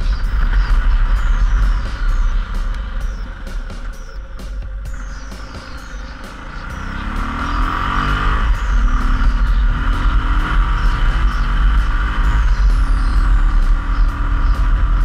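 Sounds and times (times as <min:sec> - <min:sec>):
wind rumble on microphone: 0:00.0 - 0:05.3
motorcycle engine accelerating: 0:00.0 - 0:15.0.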